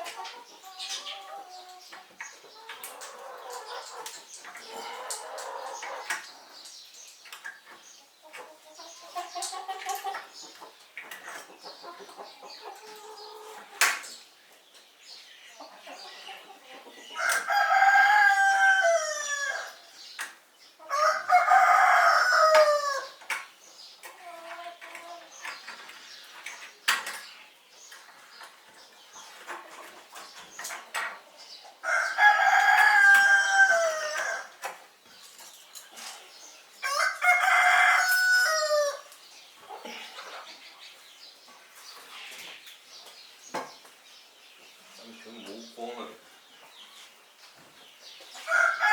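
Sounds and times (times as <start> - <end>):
hen clucking: 0.0 - 6.5, 7.7 - 13.9
roosters crowing: 17.1 - 19.9, 20.8 - 23.2, 31.8 - 34.6, 36.8 - 39.1, 48.4 - 48.9.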